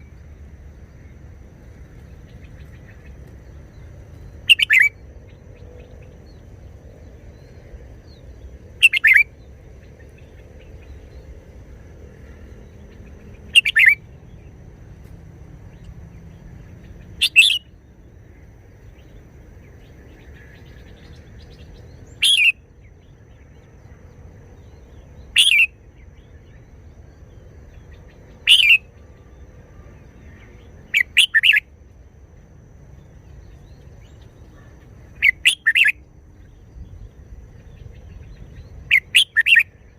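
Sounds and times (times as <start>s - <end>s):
faint low background hum: 0.0s - 39.9s
bird singing clipped phrases: 2.0s - 11.3s, 12.3s - 14.6s, 15.7s - 17.9s, 18.8s - 31.7s, 33.0s - 39.9s.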